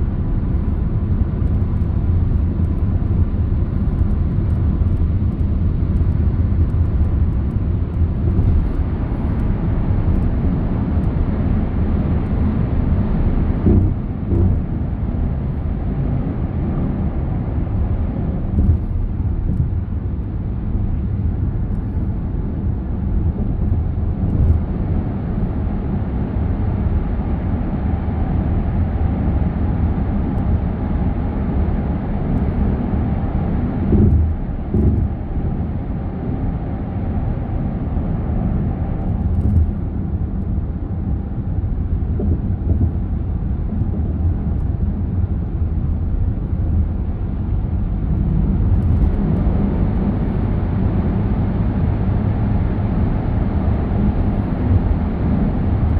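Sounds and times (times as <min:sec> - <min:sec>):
car road and engine rumble: 0:00.0 - 0:55.9
short thumps: 0:13.6 - 0:14.7.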